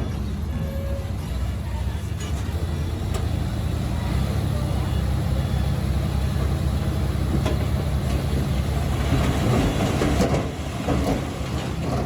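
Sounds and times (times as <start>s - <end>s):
diesel engine running: 0.0s - 12.0s
metallic clanks from tracks: 7.3s - 12.0s.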